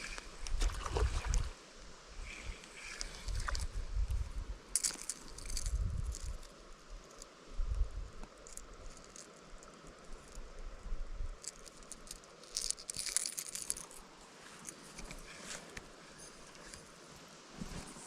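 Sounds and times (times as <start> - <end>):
brush and twigs crackling: 4.7 - 10.4, 11.4 - 16.8.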